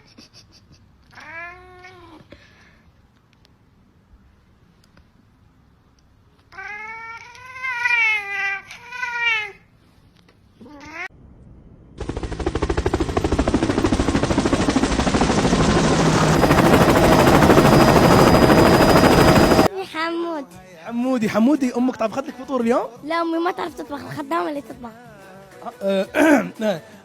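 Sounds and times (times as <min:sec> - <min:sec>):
loud fast rattling: 0:12.0 - 0:19.7.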